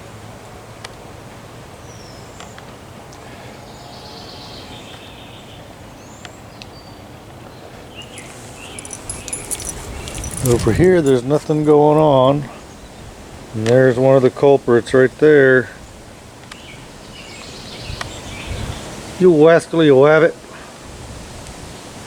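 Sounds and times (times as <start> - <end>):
steady background hiss: 7.9 - 22.0
rustling: 8.0 - 12.0.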